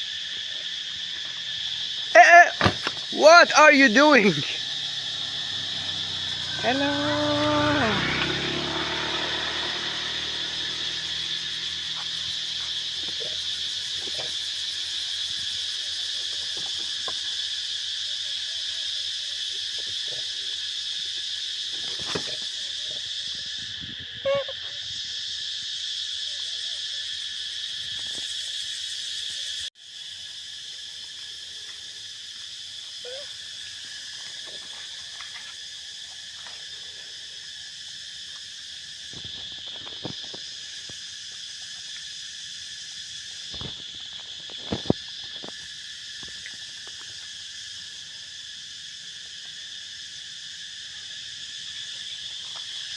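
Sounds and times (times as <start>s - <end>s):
forest insects buzzing: 0.0s - 52.9s
short call: 2.1s - 4.5s, 6.4s - 8.1s, 24.2s - 24.8s.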